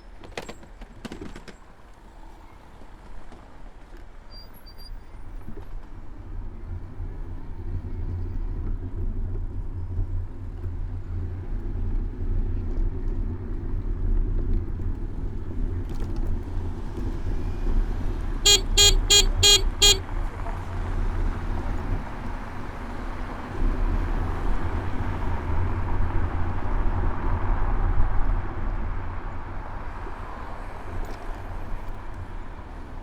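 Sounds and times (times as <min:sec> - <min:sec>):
street traffic: 0:00.0 - 0:33.0
horn toots: 0:18.4 - 0:20.1
wind rumble on microphone: 0:19.7 - 0:33.0.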